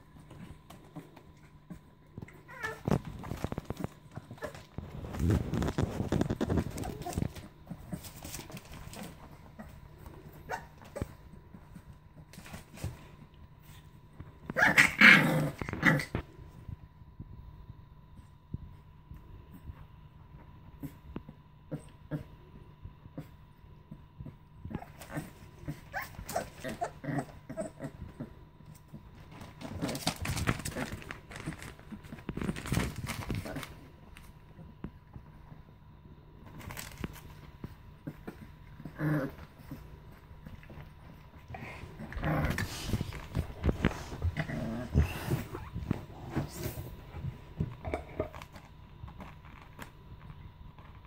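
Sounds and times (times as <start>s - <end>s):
scuffling knocks and scratches: 0.0s - 14.4s
puppies growling: 0.0s - 16.7s, 20.6s - 51.0s.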